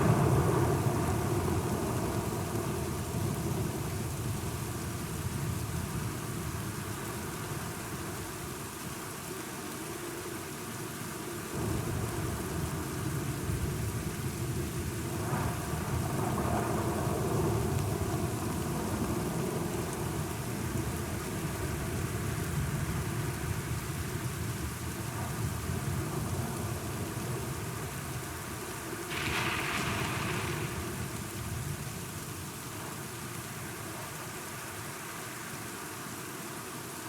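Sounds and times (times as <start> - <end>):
steady rain: 0.0 - 37.0
rolling thunder: 29.1 - 32.4.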